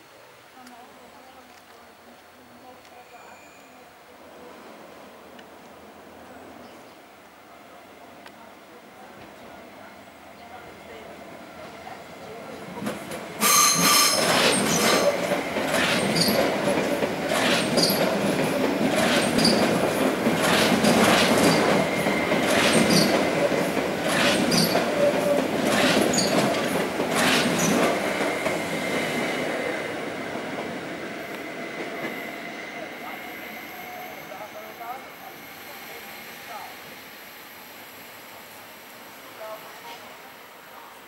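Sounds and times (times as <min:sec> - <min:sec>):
train rolling rumble: 0:04.3 - 0:38.7
wheels clacking over rail joints: 0:12.8 - 0:28.6.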